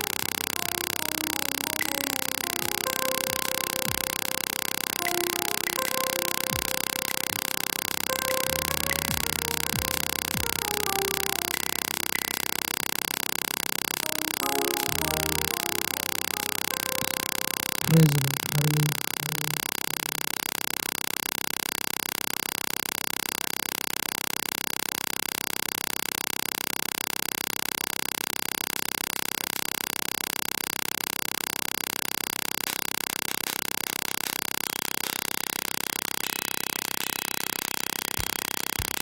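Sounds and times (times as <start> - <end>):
buzz of even tones: 0.0 - 13.2, 14.0 - 20.4.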